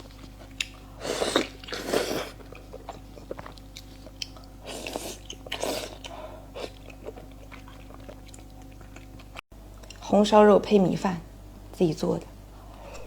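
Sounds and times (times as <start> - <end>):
person chewing food: 0.0 - 10.0.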